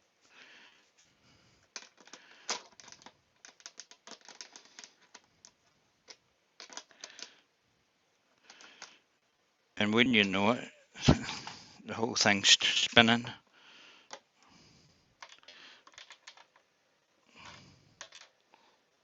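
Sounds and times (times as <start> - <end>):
metal fittings clicking and clattering: 1.6 - 7.4, 15.2 - 16.7, 17.4 - 18.7.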